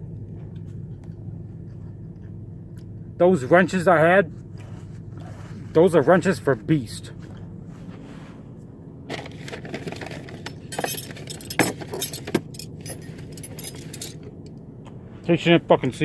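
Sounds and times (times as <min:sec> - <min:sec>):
steady low hum: 0:00.0 - 0:16.0
metal wrenches clinking: 0:09.1 - 0:14.3.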